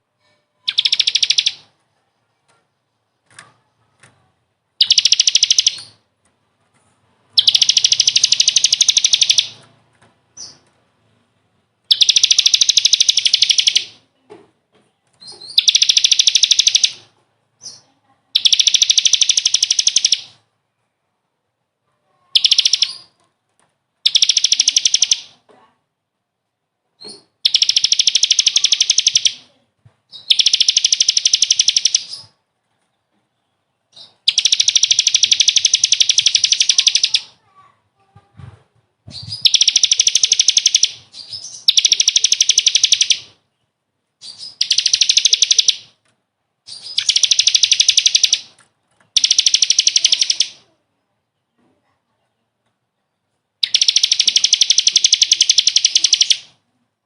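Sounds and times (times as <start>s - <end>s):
songbird singing trilled phrases: 0.6s - 1.8s, 4.8s - 6.0s, 7.4s - 9.7s, 10.4s - 10.7s, 11.9s - 14.0s, 15.2s - 20.4s, 22.3s - 23.2s, 24.0s - 25.4s, 27.0s - 32.4s, 33.4s - 37.5s, 39.1s - 46.0s, 46.7s - 51.6s, 52.3s - 56.6s.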